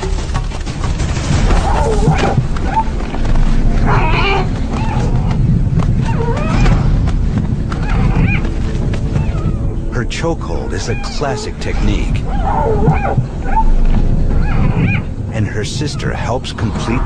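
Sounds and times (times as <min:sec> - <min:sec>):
scuffling: 0:00.0 - 0:09.9
lion growling: 0:00.0 - 0:17.0
wavering animal cries: 0:01.5 - 0:09.9, 0:10.5 - 0:15.2.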